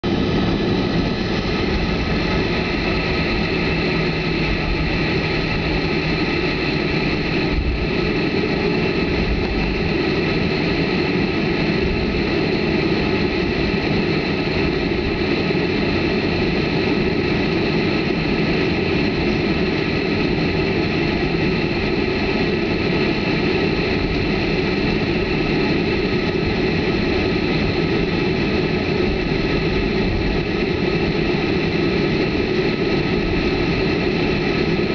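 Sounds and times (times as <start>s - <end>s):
low rumble: 0.0s - 13.8s
jet engine whine in cabin: 0.0s - 34.9s.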